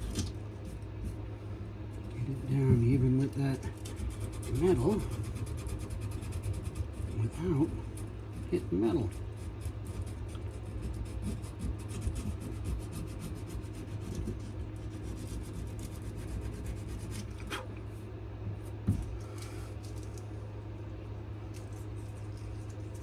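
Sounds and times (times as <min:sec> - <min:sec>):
steady low hum: 0:00.0 - 0:23.0
sandpaper scratching on wood: 0:02.3 - 0:17.3.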